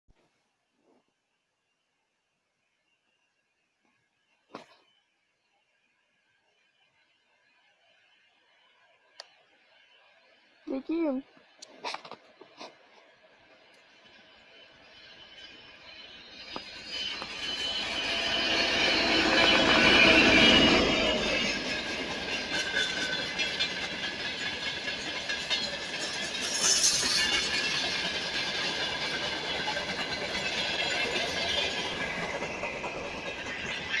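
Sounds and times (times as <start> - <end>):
train passing: 5.8 - 34.0
wagons clattering over rail joints: 18.9 - 34.0.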